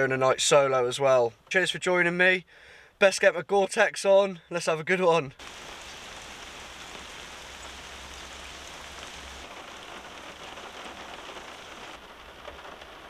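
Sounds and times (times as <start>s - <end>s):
heavy rain on a car roof: 5.4s - 13.0s.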